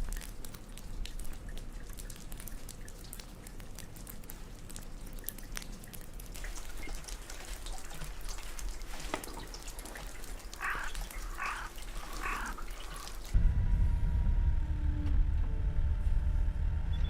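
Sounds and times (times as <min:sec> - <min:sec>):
low vehicle rumble: 0:13.4 - 0:17.0.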